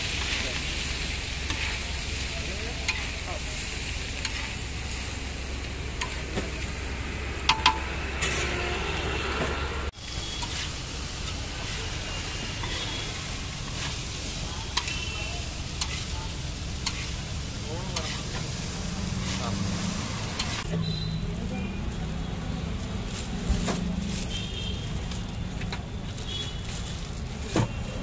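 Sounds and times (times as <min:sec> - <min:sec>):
cheese cubes sizzling on griddle: 0:00.0 - 0:07.5, 0:09.9 - 0:23.3
metal spatula scraping: 0:01.4 - 0:02.0, 0:02.8 - 0:03.2, 0:03.8 - 0:05.0, 0:05.9 - 0:06.5, 0:08.2 - 0:08.8, 0:10.1 - 0:16.1, 0:16.8 - 0:17.2, 0:17.8 - 0:20.7
spatula clinking on griddle: 0:14.7 - 0:15.1.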